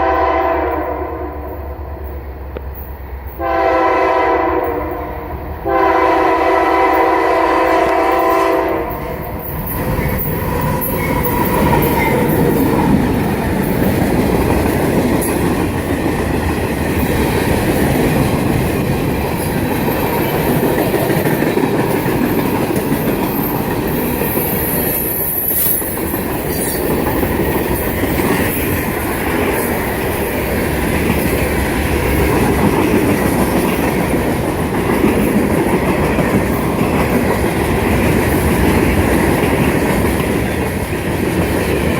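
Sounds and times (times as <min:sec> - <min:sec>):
freight train rumbling past: 0:00.0 - 0:41.9
train wheel squeal: 0:09.0 - 0:12.9, 0:22.2 - 0:27.4.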